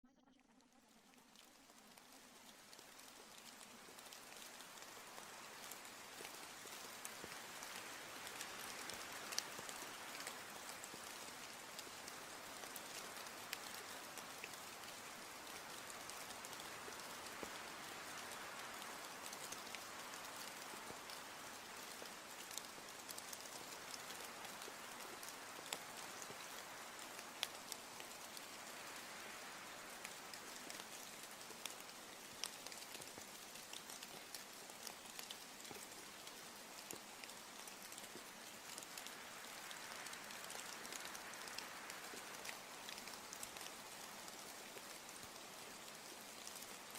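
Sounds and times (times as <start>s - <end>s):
steady rain falling: 0.8s - 46.9s.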